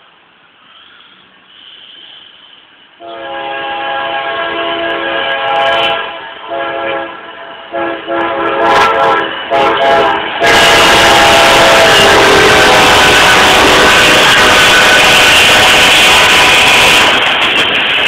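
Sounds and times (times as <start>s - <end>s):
passing train rushing: 0.0s - 18.0s
locomotive air horn blasts: 3.0s - 17.2s.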